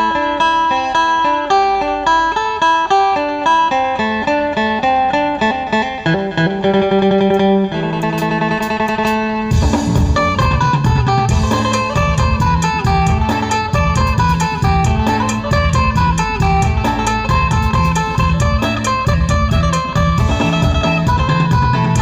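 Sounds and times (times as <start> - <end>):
plucked lute melody: 0.0 - 22.0
drum beat: 8.0 - 22.0
deep bass notes: 9.5 - 22.0.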